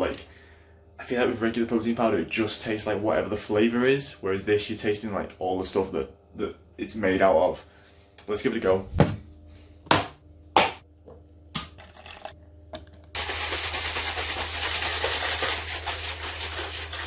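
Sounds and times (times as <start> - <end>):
shaker bottle rattling: 13.2 - 17.0.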